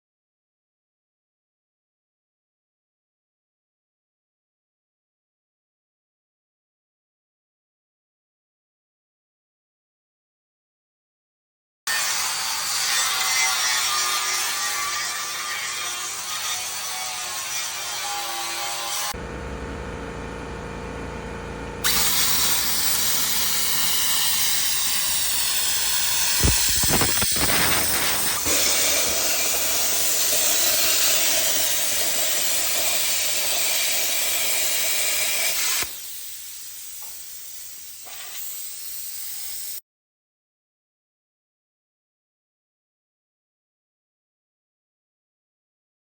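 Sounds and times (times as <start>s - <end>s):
low hum: 19.2s - 28.4s
loud steady hiss: 21.9s - 28.5s.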